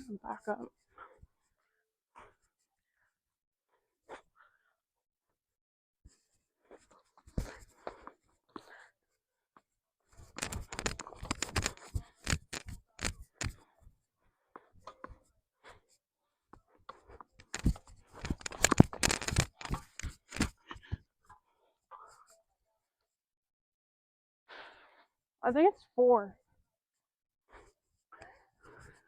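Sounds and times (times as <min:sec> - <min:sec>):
camera clicking and rustling: 0:10.2 - 0:13.6, 0:17.3 - 0:20.6.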